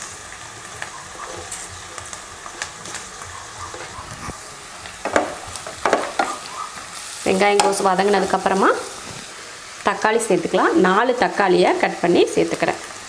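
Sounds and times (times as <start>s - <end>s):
small crackles: 0.0s - 7.2s
vegetables sizzling in oil: 0.0s - 13.0s.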